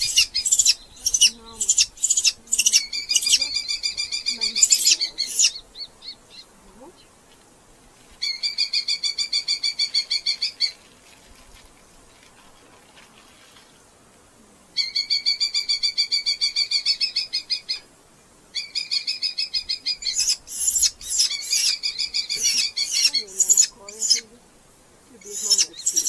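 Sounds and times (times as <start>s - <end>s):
falcon shrill repeated calls: 0.0s - 5.9s, 18.6s - 24.3s, 25.2s - 26.0s.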